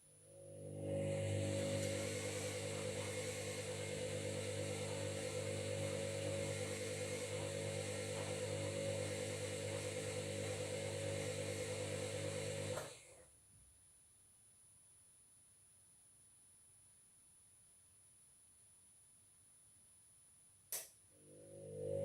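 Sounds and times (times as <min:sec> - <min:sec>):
washing machine motor drone: 0:00.3 - 0:13.2, 0:21.2 - 0:22.0.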